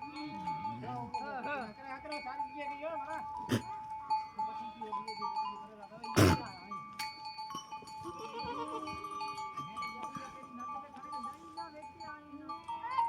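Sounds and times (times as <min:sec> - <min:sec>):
goats bleating: 0:06.2 - 0:06.4.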